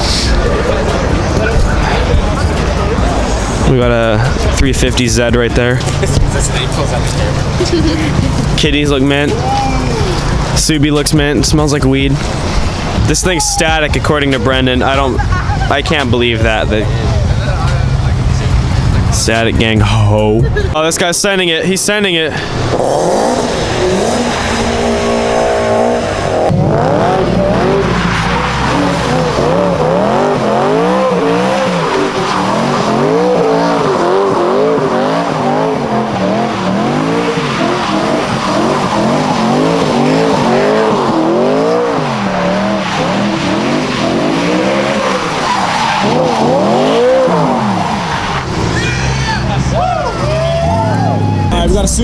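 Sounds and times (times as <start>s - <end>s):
car engine revving: 0.0s - 52.0s
tyres squealing: 27.1s - 51.6s.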